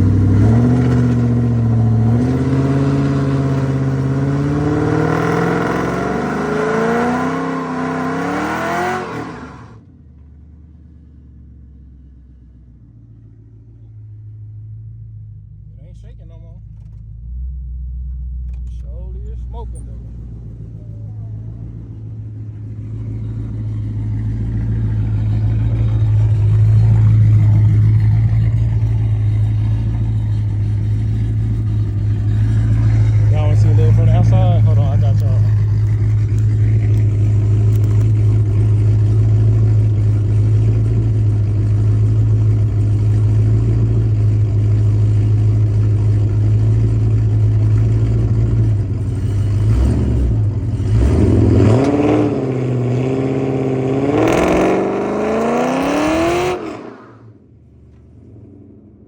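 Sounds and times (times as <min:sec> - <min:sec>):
car engine accelerating: 0:00.0 - 0:10.4, 0:12.8 - 0:59.0.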